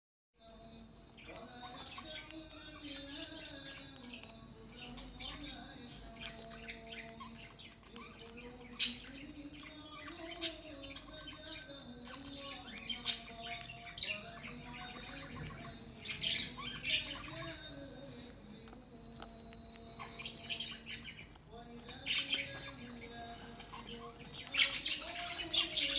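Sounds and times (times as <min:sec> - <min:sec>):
budgerigars chirping and chattering: 0:01.1 - 0:18.6, 0:19.8 - 0:25.9
sharp loud bird calls: 0:08.8 - 0:17.8.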